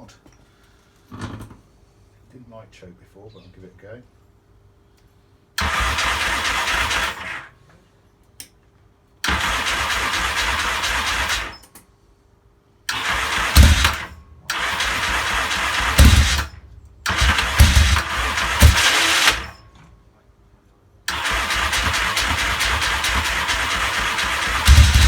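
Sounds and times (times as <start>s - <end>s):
engine cranking on electric starter: 5.6s - 7.6s, 9.2s - 11.7s, 12.9s - 19.9s, 21.1s - 25.0s
engine firing pops: 12.9s - 19.6s, 21.4s - 25.0s.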